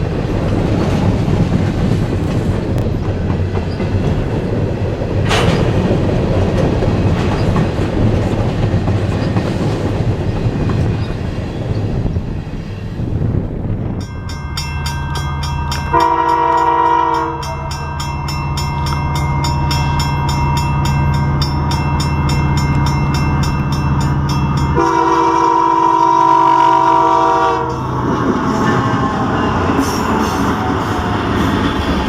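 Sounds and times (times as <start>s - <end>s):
diesel locomotive running: 0.0s - 32.0s
locomotive air horn: 15.9s - 17.7s, 24.8s - 31.0s.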